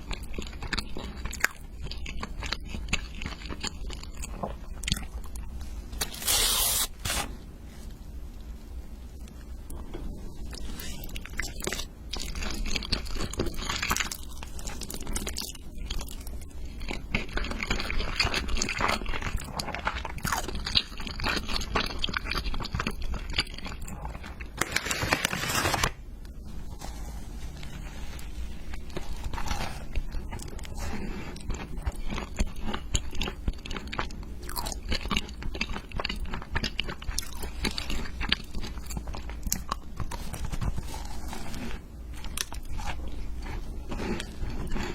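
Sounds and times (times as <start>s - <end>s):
crunching and chewing crisp food: 0.0s - 7.2s, 9.1s - 44.9s.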